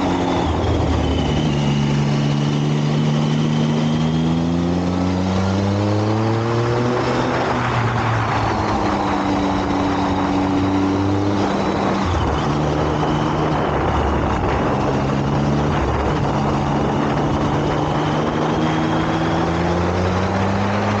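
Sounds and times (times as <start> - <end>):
motorcycle engine accelerating: 0.0 - 21.0
wind noise: 0.0 - 21.0.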